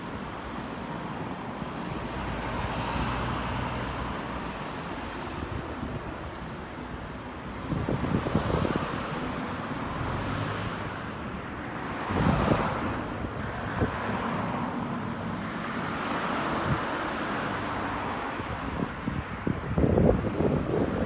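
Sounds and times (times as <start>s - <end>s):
steady traffic noise: 0.0s - 21.0s
wind buffeting microphone: 4.1s - 11.0s, 11.9s - 14.6s, 16.4s - 17.1s, 17.7s - 21.0s.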